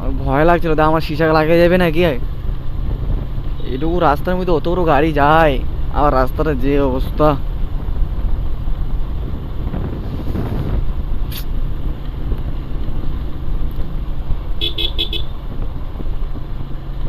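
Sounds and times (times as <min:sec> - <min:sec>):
motorcycle engine and wind rumble: 0:00.0 - 0:17.0
vehicle horn beeps: 0:14.6 - 0:15.4.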